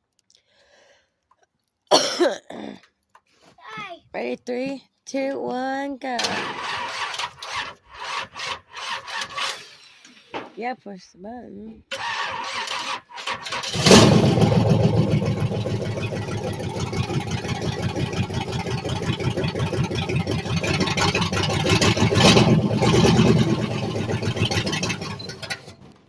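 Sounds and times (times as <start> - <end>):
car engine cranking on starter: 6.2 - 10.3, 11.9 - 26.0.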